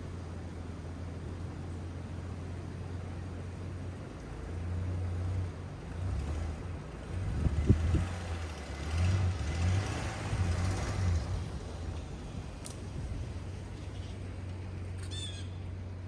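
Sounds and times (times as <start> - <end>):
truck engine revving: 5.1 - 13.9.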